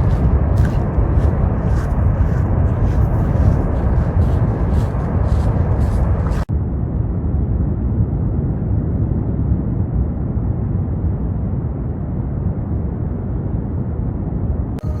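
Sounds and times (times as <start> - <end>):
deep volcanic rumble: 0.0 - 15.0.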